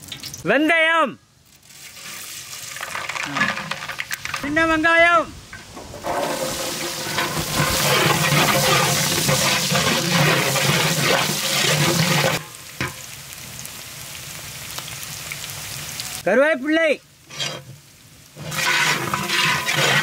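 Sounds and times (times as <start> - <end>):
shallots sizzling in oil: 0.0 - 0.5, 1.4 - 4.4, 6.0 - 16.3, 16.9 - 20.0
metal ladle stirring: 5.8 - 12.4, 18.4 - 20.0.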